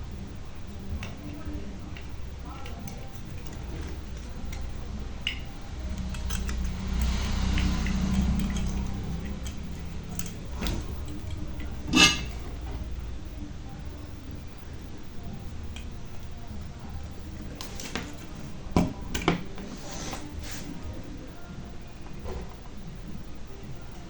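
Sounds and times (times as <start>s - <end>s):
small metal tools clicking: 4.2s - 10.4s.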